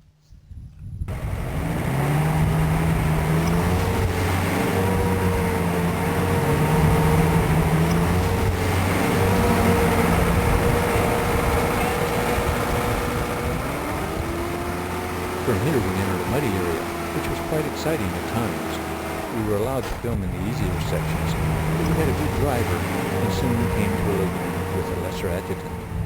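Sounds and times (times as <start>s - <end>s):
vehicle engine running: 1.1s - 26.0s.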